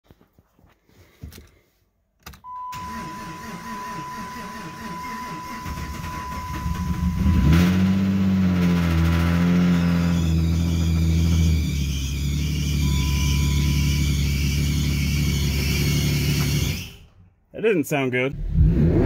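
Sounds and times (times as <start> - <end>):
car engine cranking and idling: 2.4 - 17.5
steady high tone: 12.5 - 15.6.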